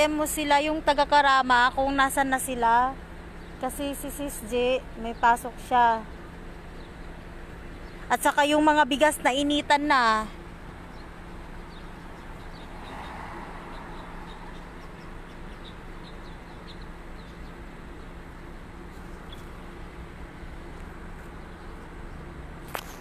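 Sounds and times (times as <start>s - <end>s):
small birds chirping: 0.0s - 22.4s
steady low hum: 0.0s - 23.0s.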